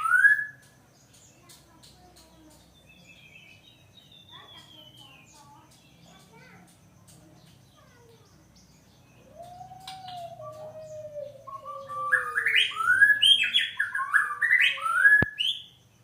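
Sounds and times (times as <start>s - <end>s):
bird singing: 0.0s - 16.0s.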